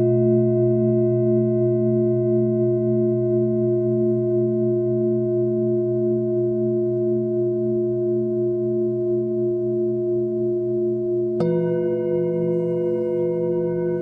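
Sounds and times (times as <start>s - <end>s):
singing bowls ringing: 8.8s - 14.0s.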